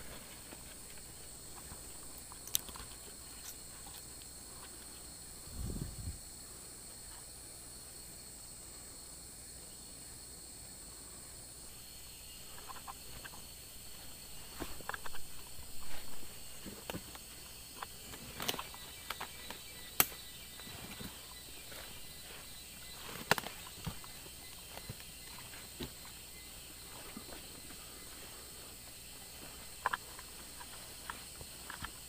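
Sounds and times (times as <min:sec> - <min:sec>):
insects droning: 0:00.0 - 0:32.0
sharp click: 0:20.0 - 0:20.2.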